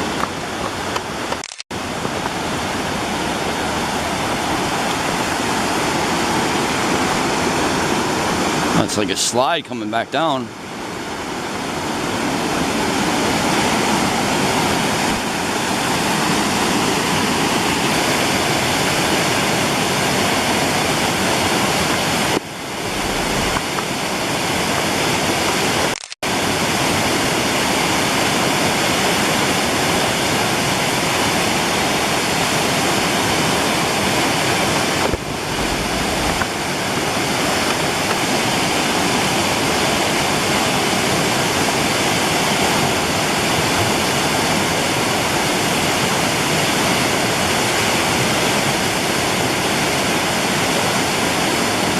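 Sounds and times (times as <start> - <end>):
waterfall pouring: 34.2 - 39.7.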